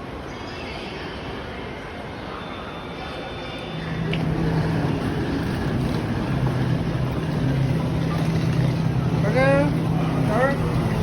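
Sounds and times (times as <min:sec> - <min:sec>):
train running rumble: 0:03.9 - 0:11.0.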